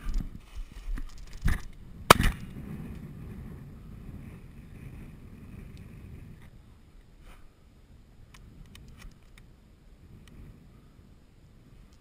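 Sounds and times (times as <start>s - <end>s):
loud shotgun shot: 2.1s - 2.5s.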